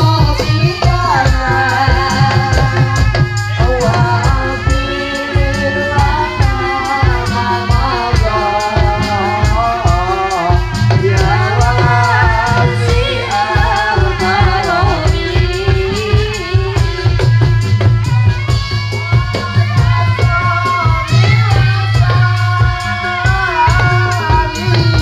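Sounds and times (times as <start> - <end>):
fast dense drumming: 0.0 - 25.0
rattling percussion: 0.0 - 25.0.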